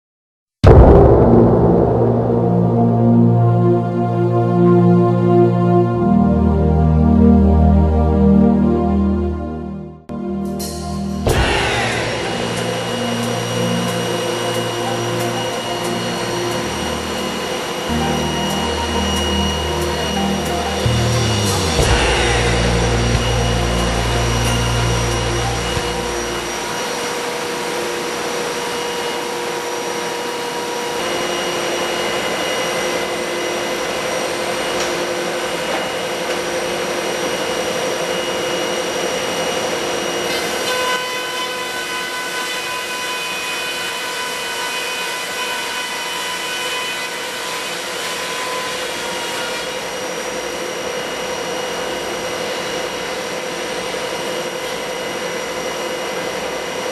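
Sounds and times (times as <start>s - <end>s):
low rumble: 0.6s - 6.0s, 10.2s - 27.0s
planer machine rushing and whining: 11.4s - 56.9s.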